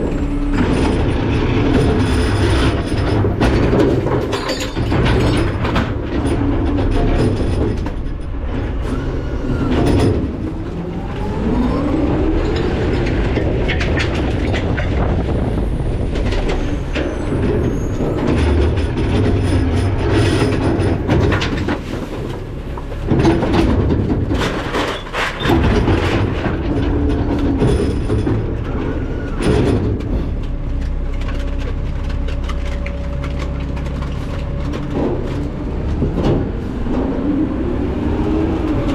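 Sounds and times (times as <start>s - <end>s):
metal clanks and bangs: 0.0s - 37.5s
garbage truck engine and hydraulics: 0.0s - 38.9s
squealing gliding metal: 6.2s - 21.1s.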